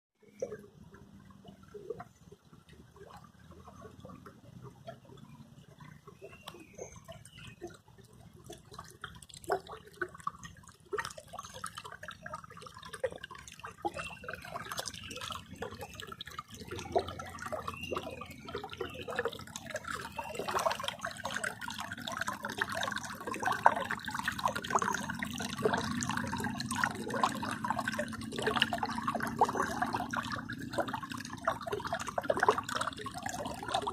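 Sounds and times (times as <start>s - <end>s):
river water splashing: 0.2s - 33.9s.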